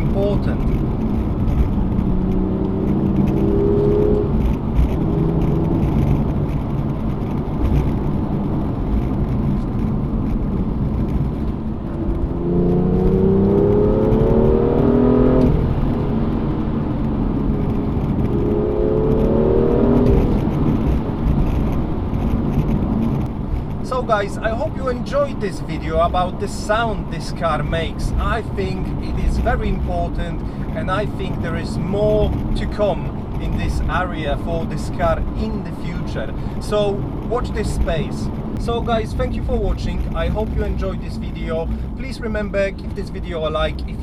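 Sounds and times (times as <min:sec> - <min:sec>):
car engine accelerating hard: 0:00.0 - 0:25.0
road noise: 0:00.0 - 0:44.0.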